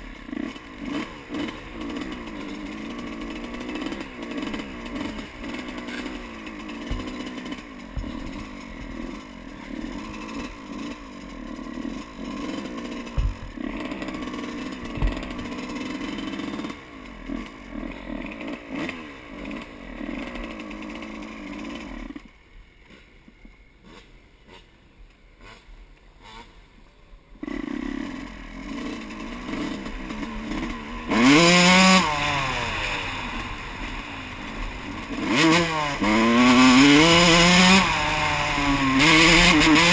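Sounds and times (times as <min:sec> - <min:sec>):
dirt bike engine revving: 0:00.0 - 0:23.1, 0:23.7 - 0:39.9
low thumps: 0:13.0 - 0:13.8, 0:14.8 - 0:15.5.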